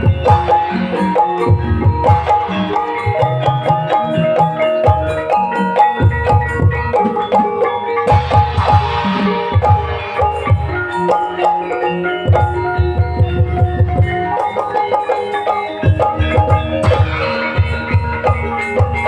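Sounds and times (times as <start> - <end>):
tuned bars melody: 0.0 - 19.0
low hand-drum strokes: 8.1 - 10.9.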